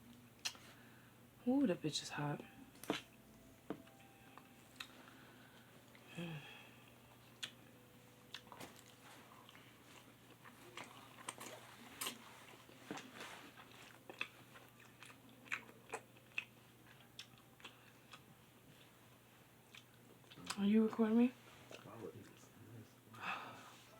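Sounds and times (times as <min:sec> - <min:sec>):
chewing noodles: 0:08.3 - 0:19.0.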